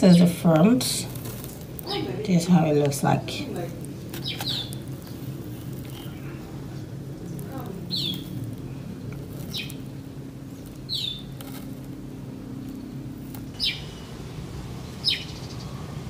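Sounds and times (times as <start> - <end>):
steady low hum: 0.0 - 16.0
small bird chirping: 4.0 - 8.5, 9.2 - 11.9, 13.5 - 14.2, 14.8 - 16.0.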